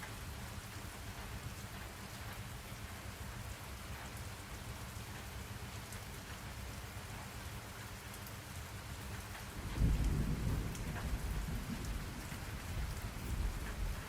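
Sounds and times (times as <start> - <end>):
steady rain falling: 0.0 - 14.0
low rumble of thunder: 9.4 - 14.0.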